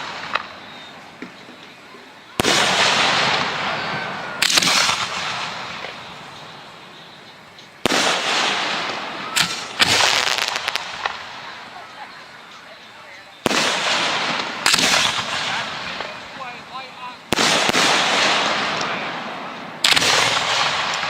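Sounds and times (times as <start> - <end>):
firework crackles: 0.0 - 21.0
hissing fall: 0.0 - 21.0
firework shells bursting: 2.4 - 12.5, 13.4 - 21.0.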